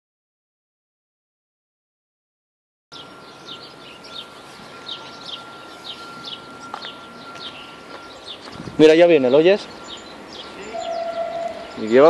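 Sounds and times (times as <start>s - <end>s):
faint steady high tone: 2.9s - 12.0s
small birds chirping: 3.0s - 12.0s.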